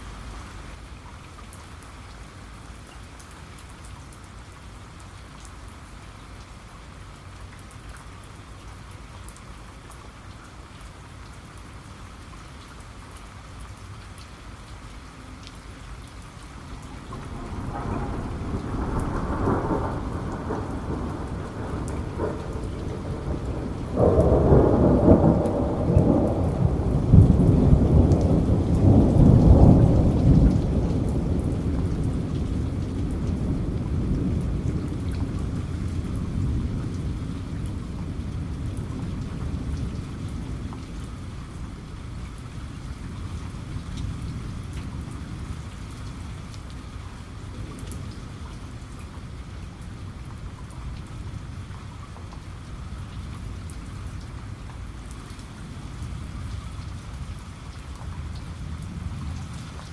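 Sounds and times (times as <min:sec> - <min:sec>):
steady rain: 0:00.0 - 0:59.9
thunder rumbling: 0:16.6 - 0:41.8.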